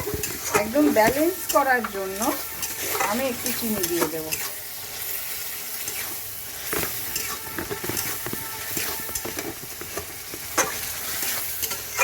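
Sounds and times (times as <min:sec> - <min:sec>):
paste sizzling in a pan: 0:00.0 - 0:12.0
spoon stirring and scraping: 0:00.0 - 0:12.0.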